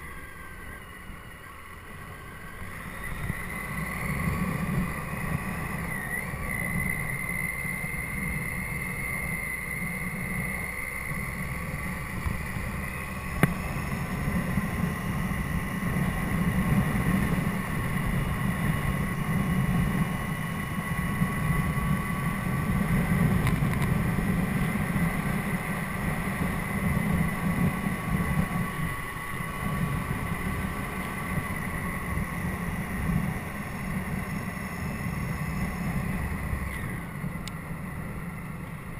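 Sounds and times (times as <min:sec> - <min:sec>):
motorcycle whine: 0:00.0 - 0:38.9
wind buffeting microphone: 0:11.2 - 0:38.9.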